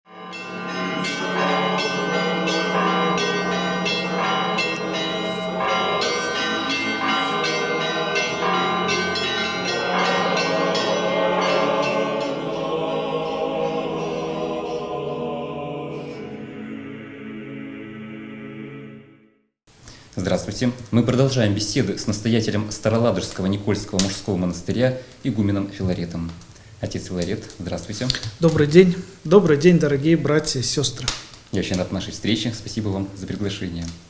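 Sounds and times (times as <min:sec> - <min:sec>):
church bells ringing: 0:00.1 - 0:15.3.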